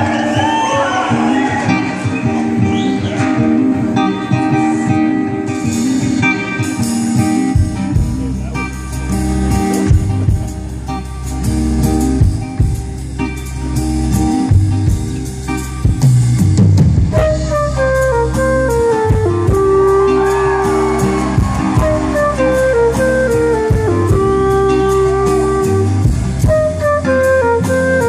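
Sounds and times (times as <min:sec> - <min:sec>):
guitar: 0:00.0 - 0:28.0
live band music: 0:00.0 - 0:28.0
deep bass line: 0:07.6 - 0:28.0.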